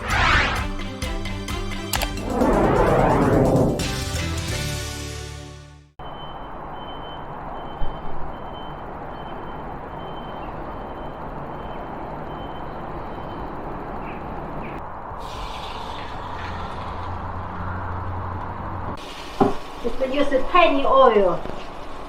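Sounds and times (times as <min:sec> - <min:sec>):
intro music: 0:00.0 - 0:05.8
faint repeating beep: 0:06.0 - 0:13.5
outdoor traffic noise: 0:06.0 - 0:19.8.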